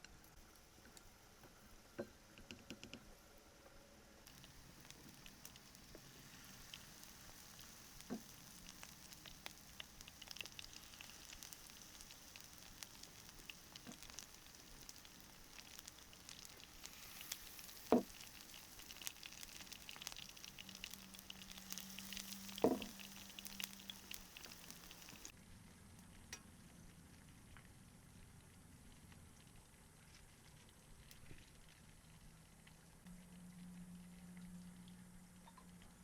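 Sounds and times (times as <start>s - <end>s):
food sizzling in hot oil: 4.2s - 25.3s.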